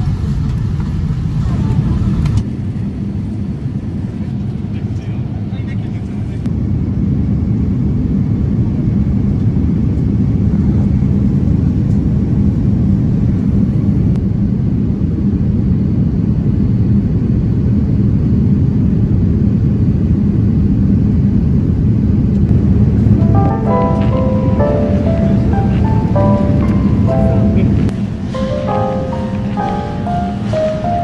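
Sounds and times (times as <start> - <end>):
airliner cabin rumble: 0.0 - 31.0
simple melody music: 22.9 - 31.0.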